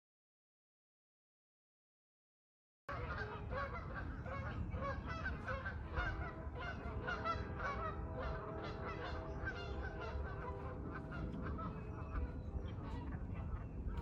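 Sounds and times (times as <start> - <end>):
geese honking: 2.9 - 14.0
steady low rumble: 2.9 - 14.0.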